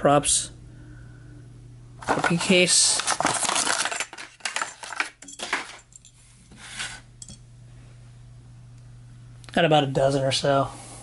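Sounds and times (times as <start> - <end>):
plastic toy packaging clattering: 2.0 - 5.9.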